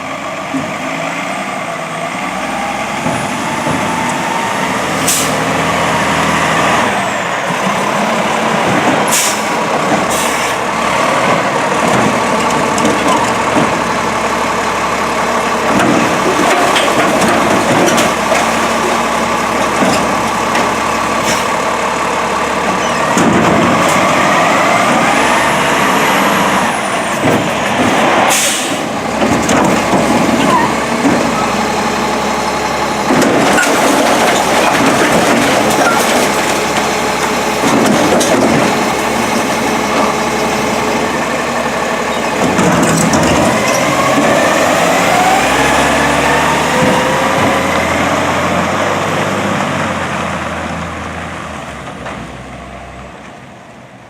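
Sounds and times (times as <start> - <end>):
truck engine running: 0.0 - 54.0
sharp bangs or hisses: 27.9 - 28.9.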